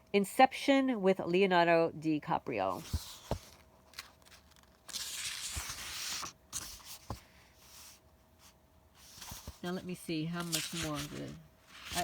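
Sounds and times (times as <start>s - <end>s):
papery rustle: 2.8s - 8.0s, 9.0s - 12.0s.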